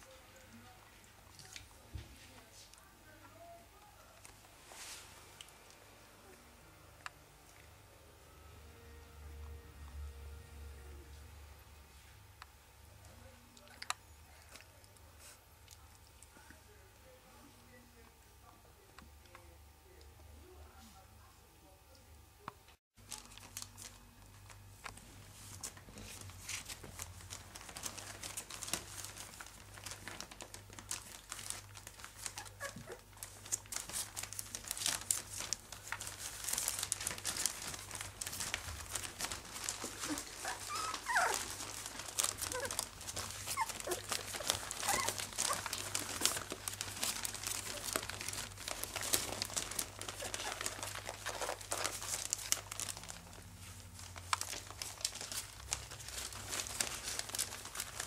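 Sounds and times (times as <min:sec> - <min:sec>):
puppies rustling and scrabbling: 0:00.0 - 0:06.5, 0:23.0 - 0:58.0
puppy whimpers: 0:32.3 - 0:33.1, 0:39.7 - 0:46.5, 0:50.1 - 0:51.6.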